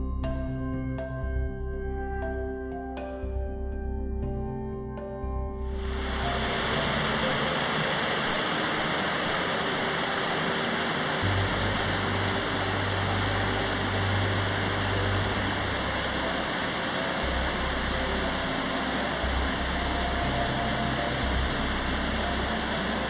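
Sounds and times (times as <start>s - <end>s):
faint background music: 0.0s - 23.0s
waterfall roaring: 5.9s - 23.0s.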